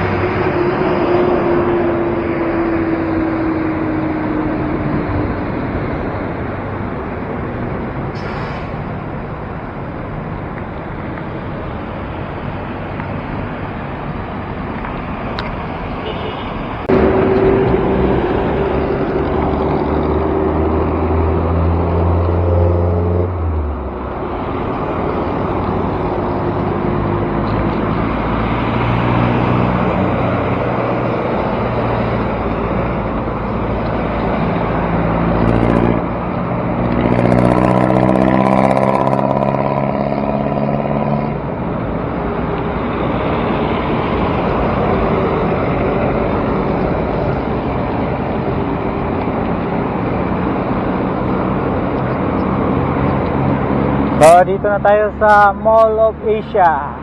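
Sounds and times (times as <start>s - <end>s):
car engines running: 0.0s - 57.0s
heavy engine hum: 0.0s - 57.0s
road noise rushing: 0.0s - 57.0s.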